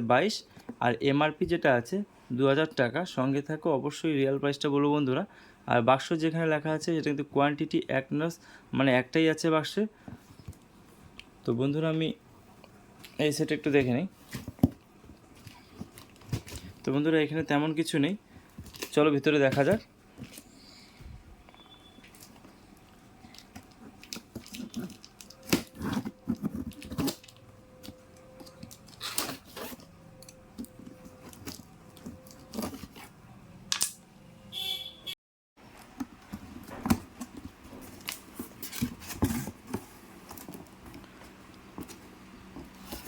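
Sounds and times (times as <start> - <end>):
cardboard tearing and crinkling: 23.6 - 27.4.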